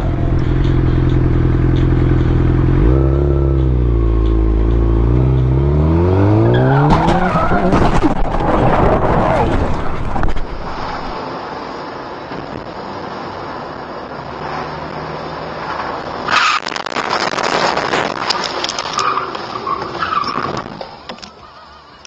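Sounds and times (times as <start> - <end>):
car driving noise: 0.0 - 22.0
loud car collision: 6.2 - 11.2.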